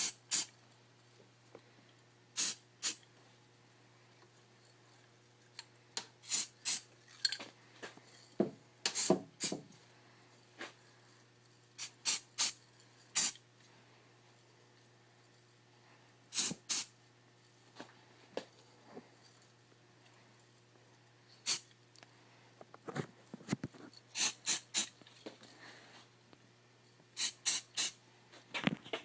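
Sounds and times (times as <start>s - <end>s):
spray paint can hissing: 0.0s - 0.5s, 2.4s - 3.0s, 6.2s - 6.8s, 8.9s - 9.6s, 11.8s - 13.4s, 16.3s - 16.9s, 21.4s - 21.6s, 24.1s - 24.9s, 27.2s - 28.0s
low steady hum: 0.0s - 29.0s.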